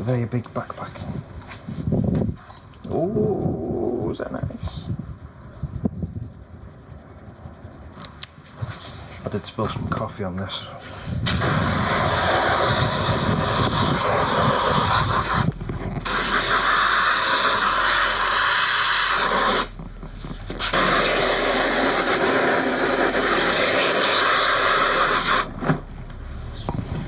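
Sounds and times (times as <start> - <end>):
garden hose spraying water: 11.2 - 19.8, 20.4 - 25.5.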